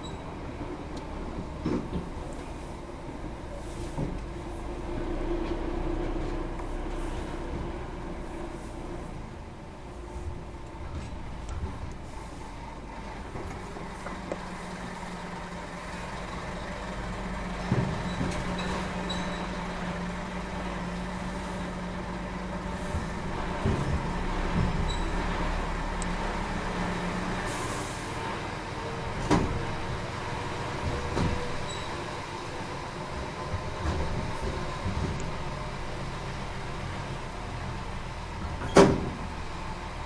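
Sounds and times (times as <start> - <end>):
truck running with low hum: 0.0 - 40.0
clunks and knocks: 1.0 - 2.6, 16.3 - 20.0, 22.7 - 25.5, 29.0 - 30.0, 30.7 - 32.1, 33.1 - 35.8, 38.4 - 39.4
short hiss of air: 27.5 - 28.2.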